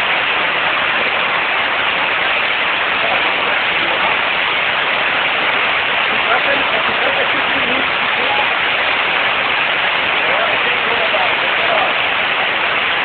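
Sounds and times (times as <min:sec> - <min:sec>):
storm runoff rushing down street: 0:00.0 - 0:13.0.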